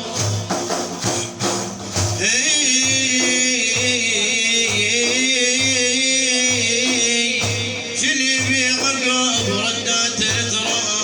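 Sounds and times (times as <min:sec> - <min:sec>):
hand-struck frame drums: 0:00.0 - 0:11.0.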